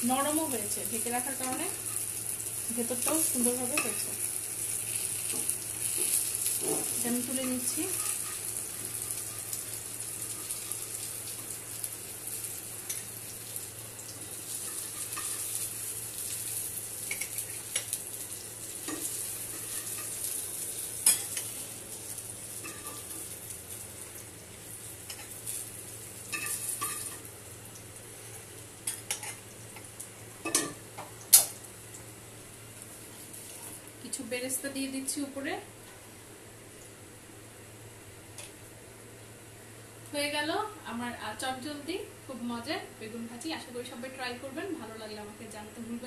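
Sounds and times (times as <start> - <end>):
food sizzling in oil: 0.0 - 35.6.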